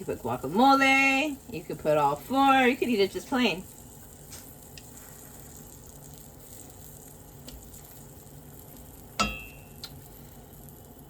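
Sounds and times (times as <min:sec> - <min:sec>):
food sizzling in a pan: 0:00.0 - 0:11.0
sharp ringing clink: 0:09.2 - 0:09.8.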